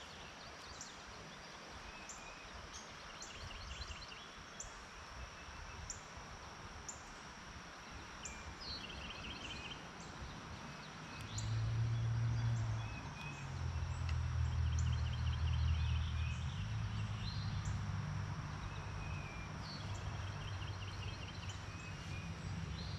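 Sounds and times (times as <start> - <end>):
low hum: 5.5 - 22.9.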